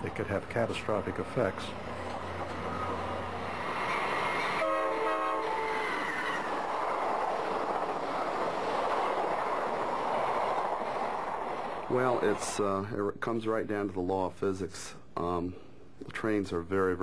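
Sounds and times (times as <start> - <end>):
passenger train passing at speed: 0.0 - 13.0
train horn blast: 4.3 - 6.5.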